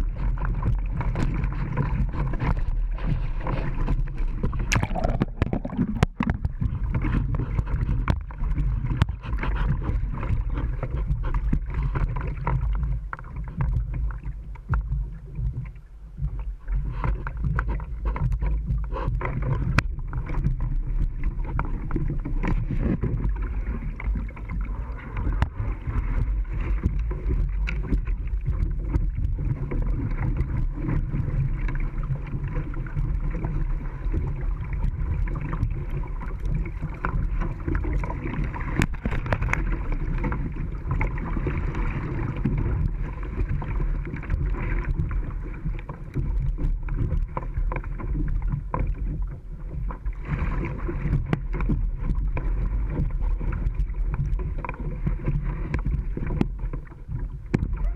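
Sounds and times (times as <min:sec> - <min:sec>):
small splashes and knocks: 0:00.0 - 0:57.9
creek water rushing: 0:04.6 - 0:06.5.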